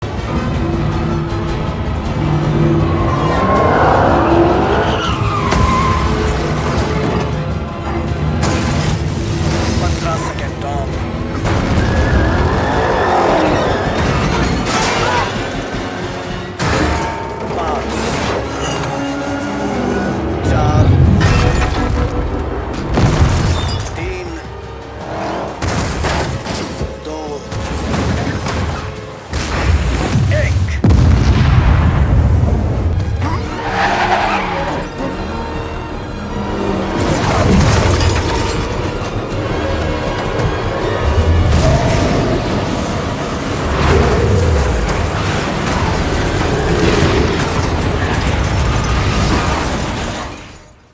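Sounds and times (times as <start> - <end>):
mechanical crashing and booming: 0.0 - 19.0, 20.4 - 24.4, 25.6 - 33.7, 36.8 - 50.9
car engines running: 0.0 - 29.2, 32.9 - 50.4
action film music score: 0.0 - 50.9
tyres squealing: 2.2 - 8.4, 9.0 - 15.9, 33.2 - 49.6
sudden loud hits: 29.3 - 33.3.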